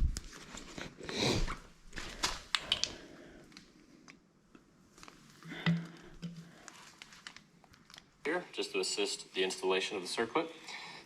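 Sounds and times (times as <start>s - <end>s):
rustle of handling: 6.5s - 8.1s
light clicks of small parts: 6.6s - 8.1s.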